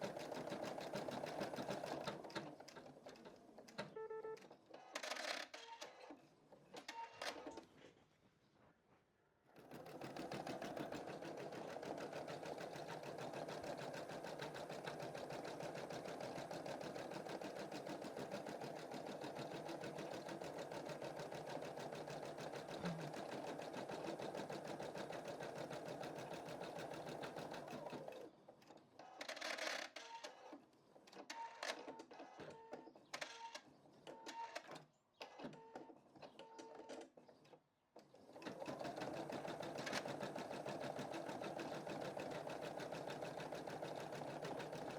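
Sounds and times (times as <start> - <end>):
embroidery machine stitching: 9.6 - 28.3, 38.3 - 44.9.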